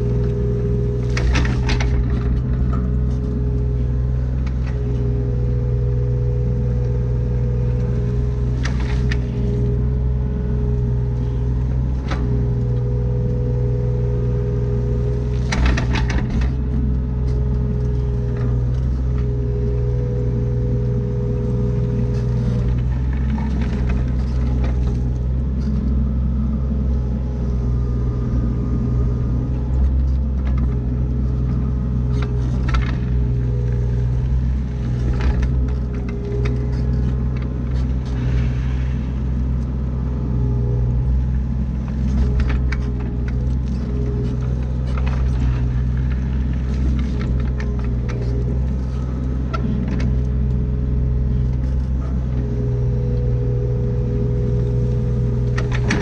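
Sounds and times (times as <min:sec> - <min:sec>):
excavator diesel engine: 0:00.0 - 0:56.0
hydraulic whine: 0:10.7 - 0:26.0, 0:51.3 - 0:56.0.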